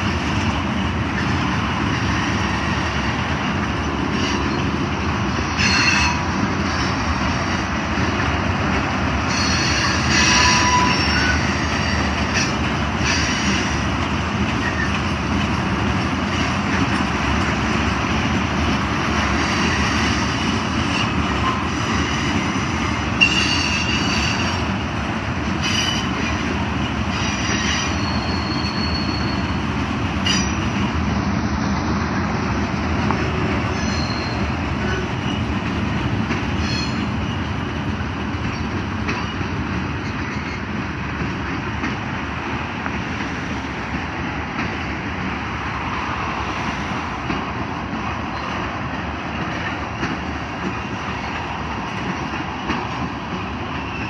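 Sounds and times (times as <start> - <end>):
freight train rumble: 0.0 - 54.0
high-pitched wheel squeals: 5.5 - 6.3, 9.3 - 13.7, 23.2 - 24.6, 27.1 - 29.6, 30.2 - 30.7, 33.7 - 35.4, 36.6 - 37.4
wheels clicking over rail joints: 32.8 - 42.2.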